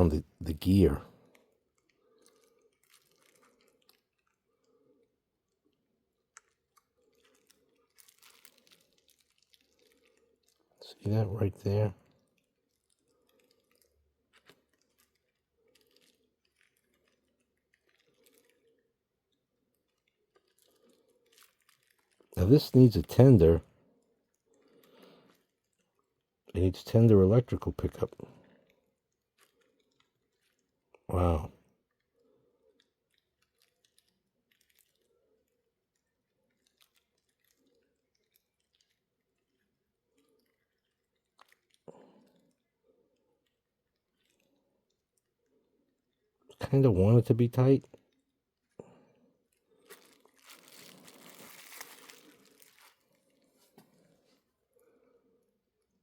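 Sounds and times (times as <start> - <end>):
faint clicks of small parts: 0.9 - 56.0.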